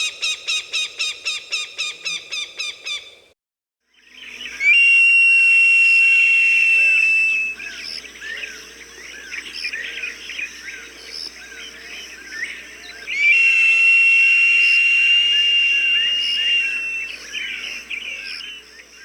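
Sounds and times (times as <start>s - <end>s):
falcon cry whistle: 4.6s - 7.6s, 13.1s - 17.6s.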